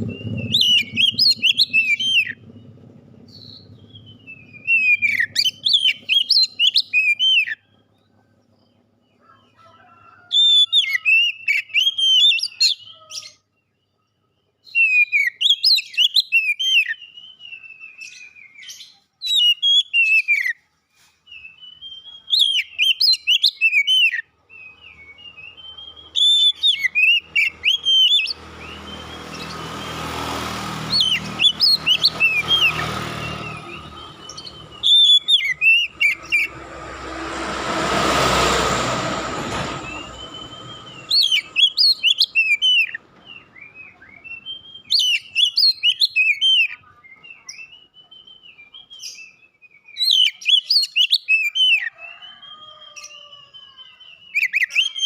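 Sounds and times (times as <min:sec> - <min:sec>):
rushing noise with low rumble: 0:00.0 - 0:05.7, 0:28.4 - 0:41.6
bird singing whistled notes: 0:00.0 - 0:07.7, 0:10.5 - 0:20.6, 0:21.2 - 0:30.0, 0:30.9 - 0:36.5, 0:39.8 - 0:55.0.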